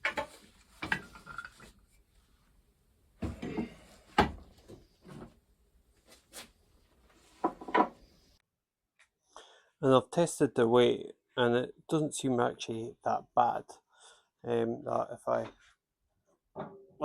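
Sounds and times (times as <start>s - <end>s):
objects knocking and clattering: 0.0s - 1.8s, 3.2s - 5.3s, 7.4s - 8.0s.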